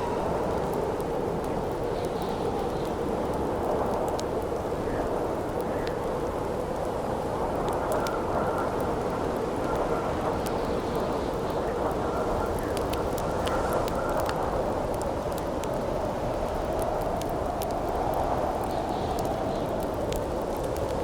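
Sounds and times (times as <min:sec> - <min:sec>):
wind howling: 0:00.0 - 0:04.0
campfire crackling and popping: 0:00.0 - 0:21.0.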